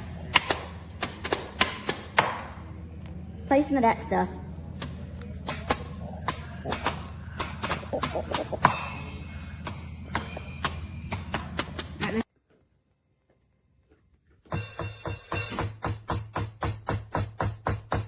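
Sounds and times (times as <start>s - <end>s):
low steady hum: 0.0s - 14.8s
drumsticks hitting electronic drum pads: 4.8s - 8.9s, 14.5s - 18.0s.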